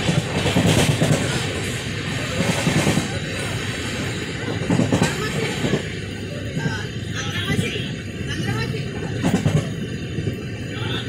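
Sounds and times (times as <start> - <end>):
train wheels clattering: 0.0 - 6.0, 8.4 - 10.4.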